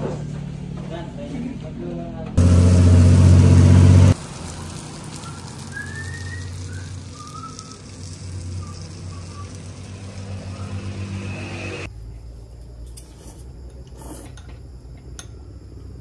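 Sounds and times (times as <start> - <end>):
faint bird chirps: 5.2 - 9.8.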